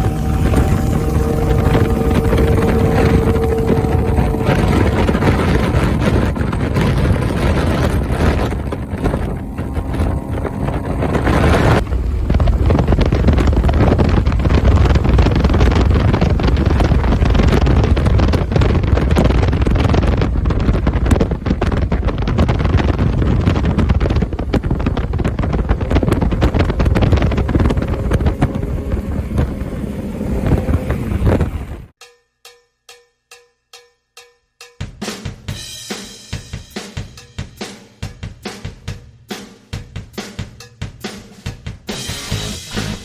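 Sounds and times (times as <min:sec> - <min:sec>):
motorcycle engine running: 0:00.0 - 0:31.9
wind buffeting microphone: 0:00.0 - 0:32.0.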